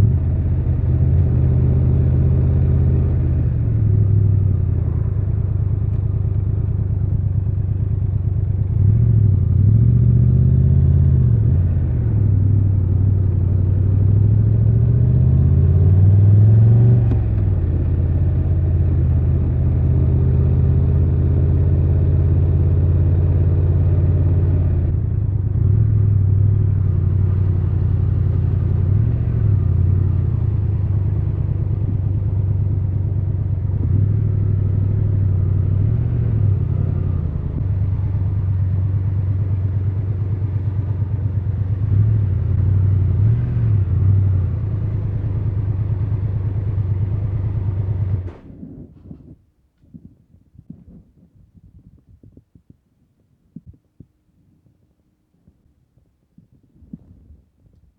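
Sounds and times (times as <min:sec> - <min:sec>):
motorcycle engine revving: 0:08.6 - 0:49.1.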